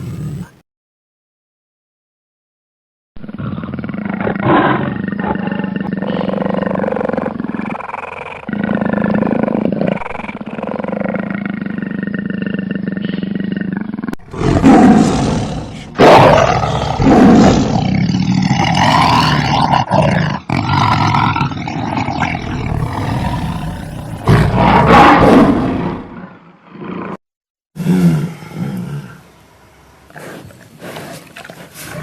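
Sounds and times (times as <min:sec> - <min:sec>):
harsh animal calls: 0:14.2 - 0:25.7.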